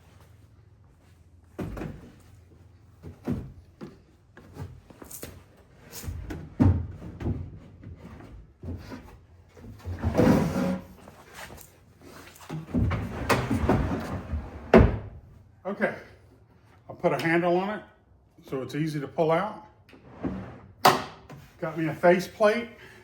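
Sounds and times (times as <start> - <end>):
wooden drawer knocks and thumps: 12.6 - 15.2
drawer sliding rumble: 12.8 - 15.2, 20.0 - 20.8.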